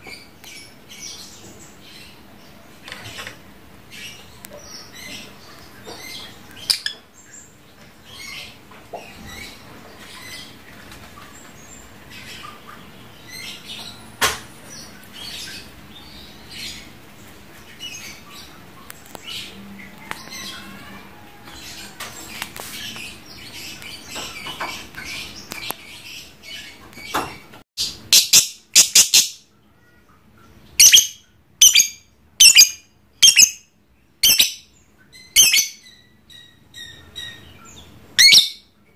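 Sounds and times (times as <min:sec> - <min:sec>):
lovebird chirps and chatter: 0:19.0 - 0:27.1, 0:27.8 - 0:29.4, 0:30.8 - 0:33.6, 0:34.2 - 0:37.5, 0:38.2 - 0:38.7.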